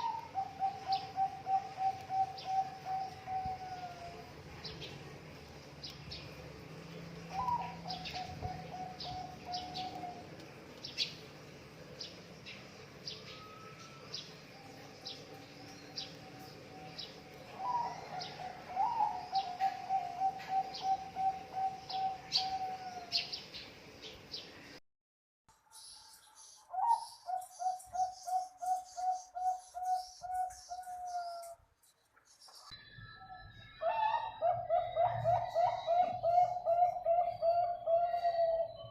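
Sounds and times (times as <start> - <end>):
dove trilled coo: 0.0 - 4.3, 7.3 - 10.4, 16.0 - 23.4, 26.7 - 31.6, 33.8 - 38.9
small birds chirping: 0.0 - 24.8, 25.6 - 35.2.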